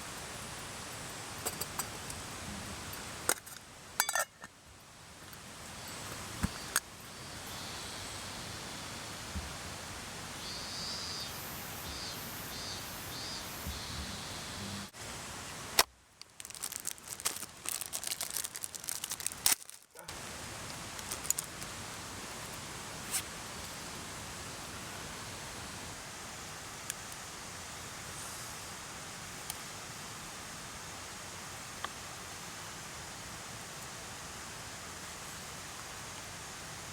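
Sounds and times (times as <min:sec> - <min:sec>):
mountain stream rushing: 0:20.1 - 0:36.9.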